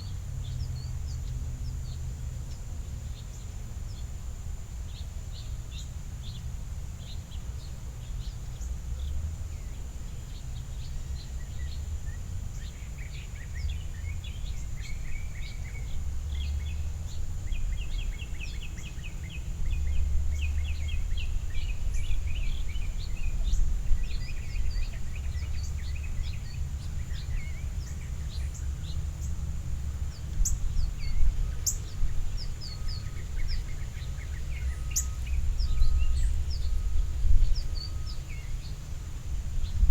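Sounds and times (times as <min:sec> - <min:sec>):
songbirds chipping: 0:00.0 - 0:39.9
bird twittering: 0:30.4 - 0:36.9.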